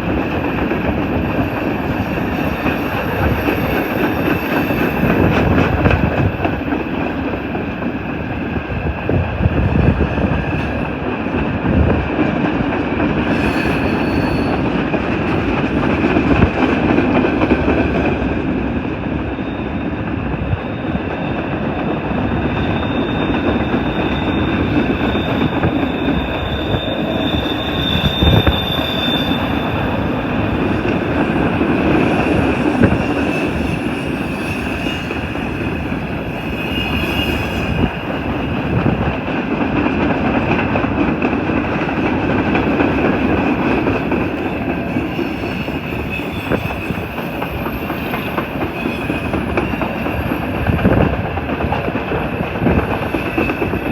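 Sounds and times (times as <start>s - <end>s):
train wheels clacking on rails: 0.0s - 53.9s
high-pitched wheel squeal: 13.3s - 14.8s, 22.3s - 38.1s, 44.9s - 50.6s.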